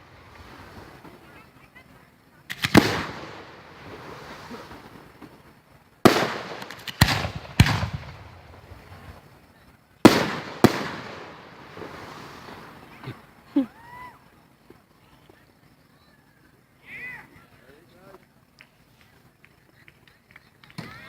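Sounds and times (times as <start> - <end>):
fireworks booming: 2.5 - 13.9.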